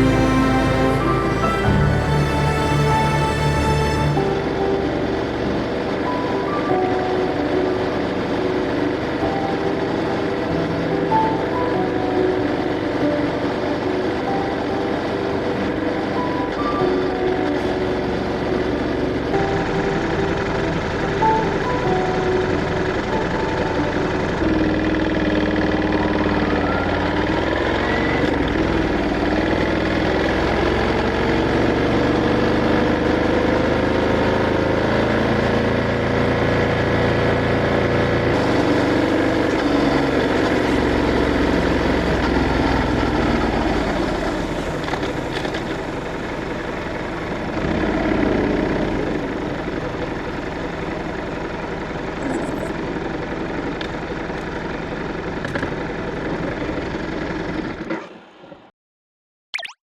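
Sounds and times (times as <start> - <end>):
motorcycle engine running: 24.2 - 57.8.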